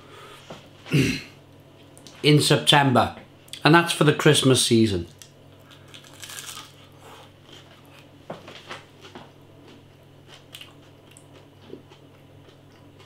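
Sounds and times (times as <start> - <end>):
steady low hum: 0.0 - 13.0
person chewing crunchy potatoes: 5.1 - 8.2, 8.9 - 13.0.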